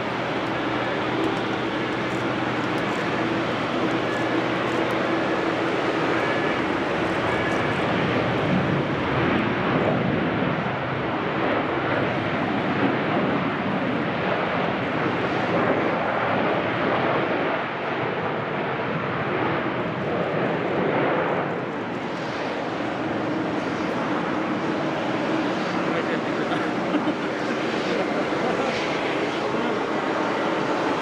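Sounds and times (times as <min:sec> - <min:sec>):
jet engines rushing: 0:00.0 - 0:15.8, 0:20.3 - 0:31.0.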